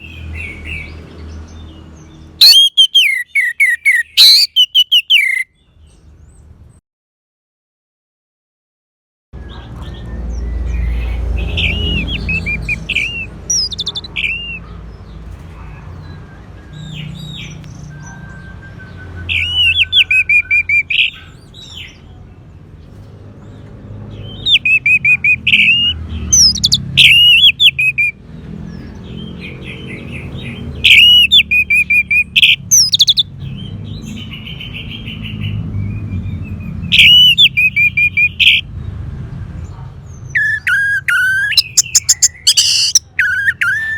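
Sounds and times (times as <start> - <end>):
thrush singing: 10.5 - 14.8, 24.4 - 28.2, 36.8 - 38.7, 40.4 - 43.9.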